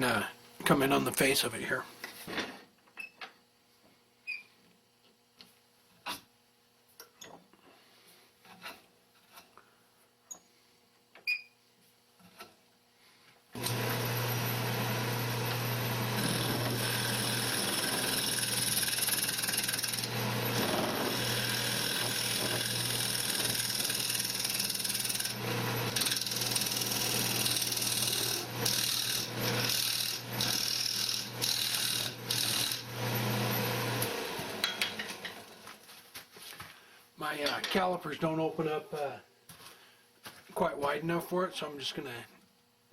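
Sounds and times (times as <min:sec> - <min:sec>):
turning tool cutting wood: 0:13.6 - 0:35.6
wood lathe hum: 0:13.6 - 0:35.7.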